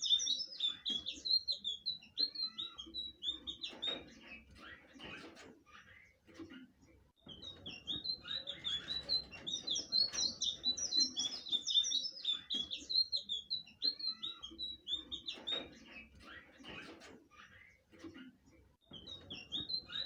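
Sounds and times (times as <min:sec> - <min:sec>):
bird singing high chirps: 0:00.0 - 0:04.1, 0:07.2 - 0:16.2, 0:18.8 - 0:20.0.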